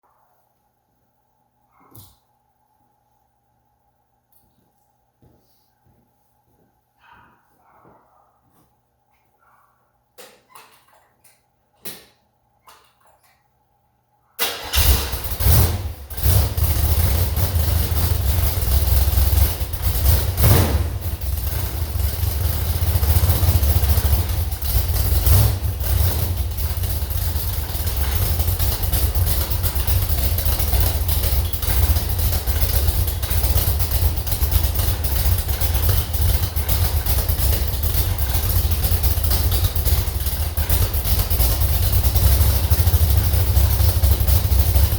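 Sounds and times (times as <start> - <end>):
engine starting and running: 14.4 - 44.9.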